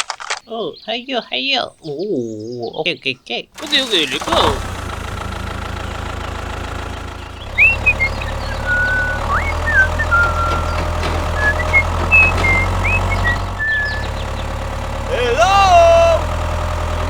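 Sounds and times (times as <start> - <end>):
engine idling: 3.6 - 17.0.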